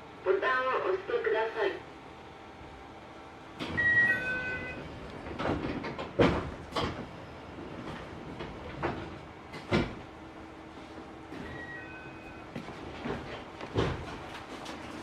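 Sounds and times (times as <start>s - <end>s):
train carriage hum: 0.0s - 15.0s
sliding doors knocking and thudding: 5.2s - 10.1s, 12.6s - 14.9s.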